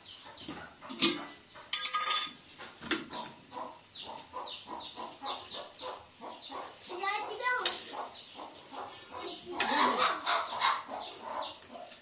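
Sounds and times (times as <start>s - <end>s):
small birds chirping: 0.0s - 12.0s
dishes clinking and clattering: 0.9s - 3.0s.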